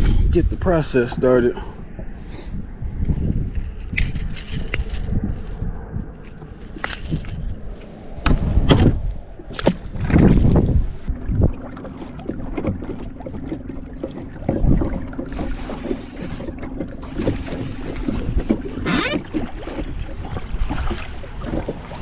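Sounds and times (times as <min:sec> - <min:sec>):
knocks and handling noise: 0:03.1 - 0:08.0.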